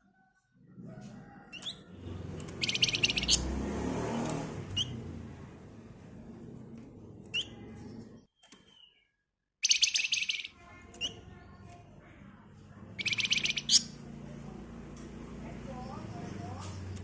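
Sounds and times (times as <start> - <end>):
songbird buzzy trills: 2.5 - 3.5, 8.4 - 11.7, 13.0 - 14.0.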